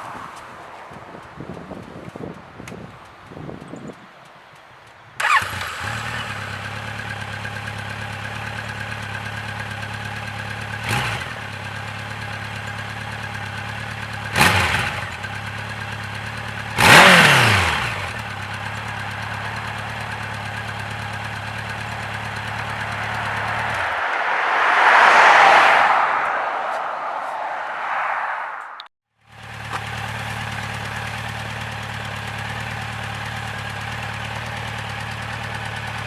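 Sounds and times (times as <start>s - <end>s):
motorcycle engine idling: 1.2s - 23.9s, 29.2s - 36.0s
motorcycle engine starting: 5.2s - 24.0s, 29.3s - 36.0s
motorcycle engine revving: 5.2s - 24.6s, 29.3s - 36.0s.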